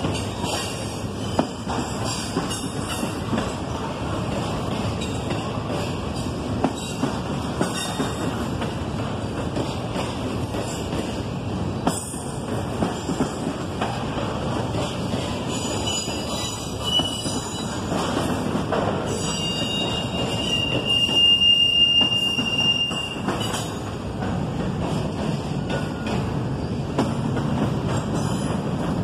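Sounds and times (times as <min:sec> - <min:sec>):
freight train rumbling past: 0:00.0 - 0:29.0
train knocks: 0:00.0 - 0:29.0
high wheel squeal: 0:15.6 - 0:17.8, 0:19.1 - 0:23.3.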